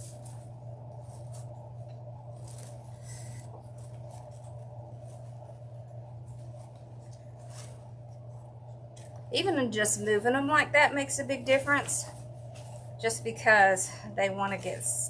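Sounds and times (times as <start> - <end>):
crinkly mesh rustling: 0.0 - 9.3
steady low hum: 0.0 - 15.0.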